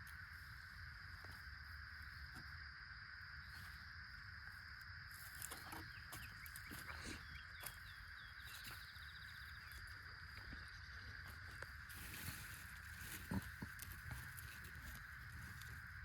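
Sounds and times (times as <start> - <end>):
bird chirps: 5.4 - 9.8.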